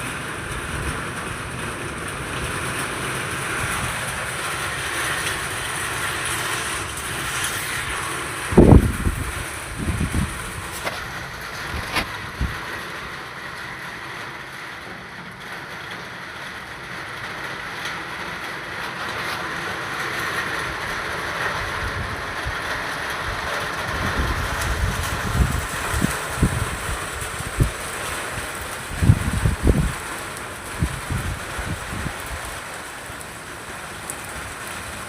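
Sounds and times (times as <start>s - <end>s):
wind buffeting microphone: 0.0s - 12.9s, 20.9s - 32.8s
steady wind noise: 0.0s - 14.7s, 18.7s - 35.0s.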